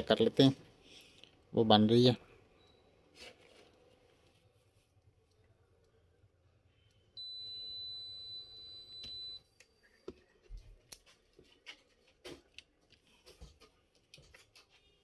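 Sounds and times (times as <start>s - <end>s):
high electronic beep: 7.2s - 9.4s.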